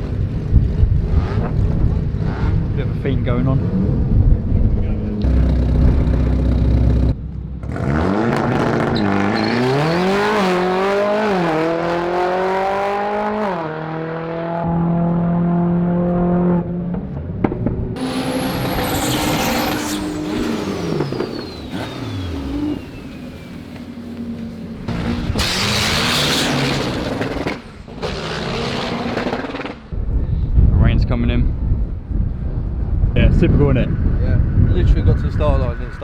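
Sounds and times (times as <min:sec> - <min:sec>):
car engine accelerating hard: 0:00.6 - 0:17.1, 0:17.9 - 0:29.9
high engine whistle: 0:18.0 - 0:23.7.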